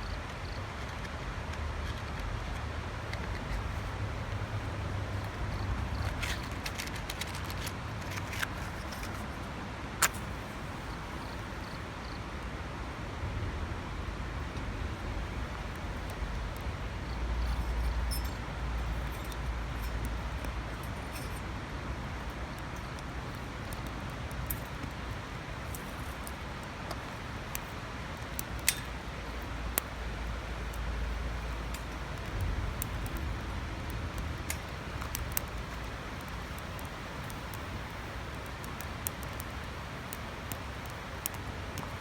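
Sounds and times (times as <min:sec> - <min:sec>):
twigs snapping and crackling: 0:00.2 - 0:09.3, 0:14.9 - 0:42.0
low outdoor rumble: 0:10.2 - 0:42.0.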